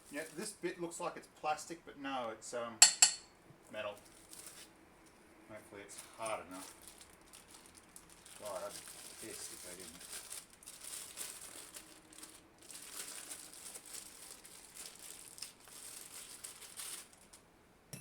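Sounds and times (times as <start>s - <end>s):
packaging crinkling and rustling: 0.0s - 0.6s, 3.8s - 4.8s, 5.9s - 17.5s.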